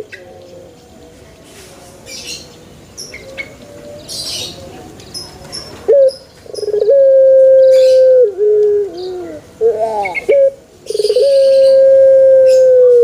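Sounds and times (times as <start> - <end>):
small birds chirping: 0.0 - 7.0, 7.6 - 11.8
dove cooing: 5.9 - 13.0.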